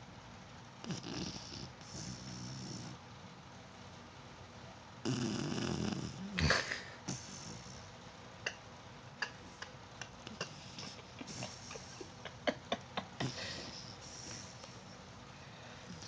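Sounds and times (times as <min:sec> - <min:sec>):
puppy snoring: 0:00.8 - 0:03.0, 0:05.0 - 0:08.0, 0:09.2 - 0:15.0.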